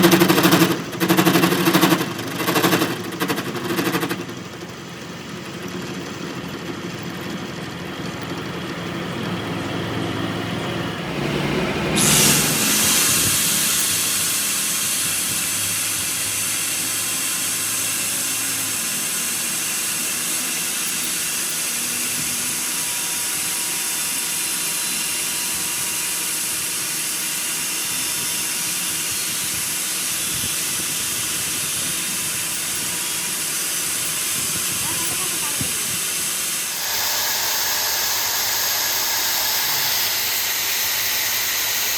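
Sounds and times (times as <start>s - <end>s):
loud steady hiss: 11.9s - 41.9s.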